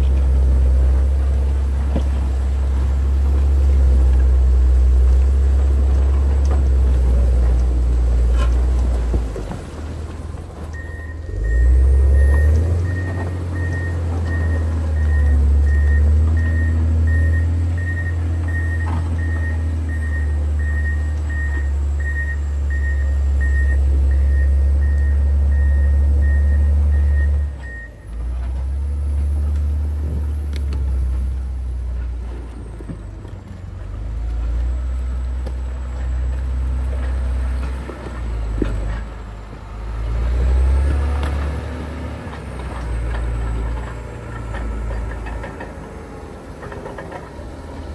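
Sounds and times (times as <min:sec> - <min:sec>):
diesel engine rumbling under load: 0:00.0 - 0:47.9
reverse alarm beeping: 0:10.8 - 0:28.1.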